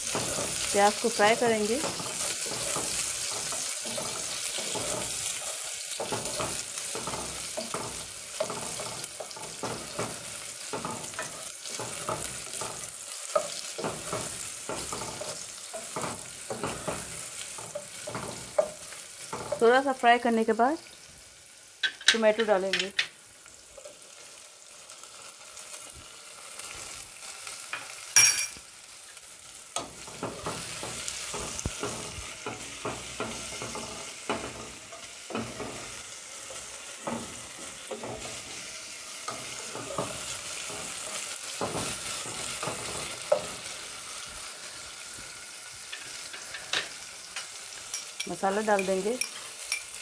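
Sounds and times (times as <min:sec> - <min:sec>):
spatula scraping a pan: 0:00.0 - 0:19.7, 0:29.8 - 0:50.0
onions sizzling in hot oil: 0:00.0 - 0:50.0.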